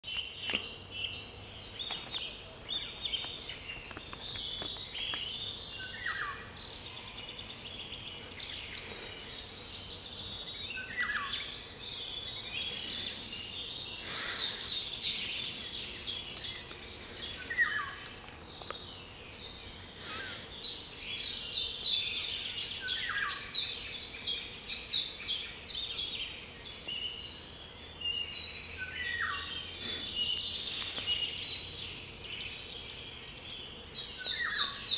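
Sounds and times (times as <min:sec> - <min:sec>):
songbirds singing: 0:00.0 - 0:34.9.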